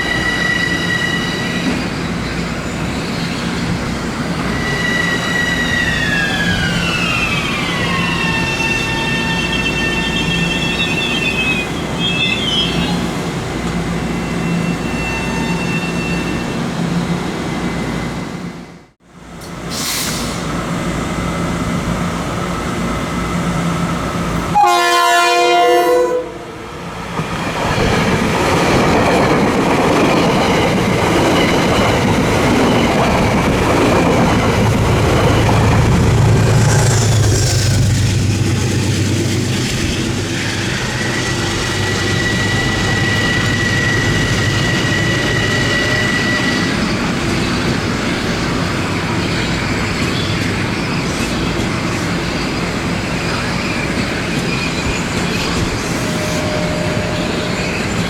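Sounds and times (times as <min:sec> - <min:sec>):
train passing close by: 0:00.0 - 0:58.0
train horn blast: 0:24.5 - 0:26.7
train wheels on rails: 0:26.7 - 0:58.0.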